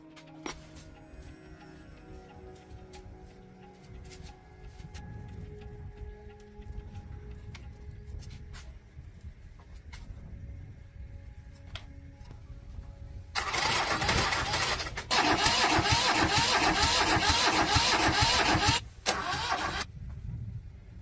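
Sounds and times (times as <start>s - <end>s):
engine cranking with starter: 13.4s - 19.9s.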